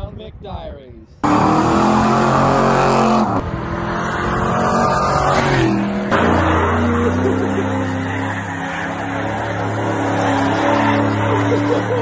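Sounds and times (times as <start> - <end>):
car engine revving high: 1.2 - 12.0
tires spinning: 1.2 - 12.0.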